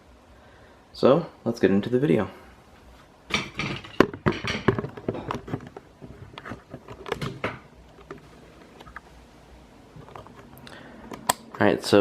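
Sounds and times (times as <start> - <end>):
handling clicks and rustles: 3.3 - 12.0.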